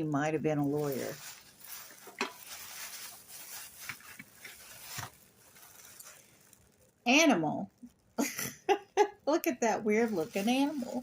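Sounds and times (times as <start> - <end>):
buttons rustling and scraping: 0.8 - 6.5.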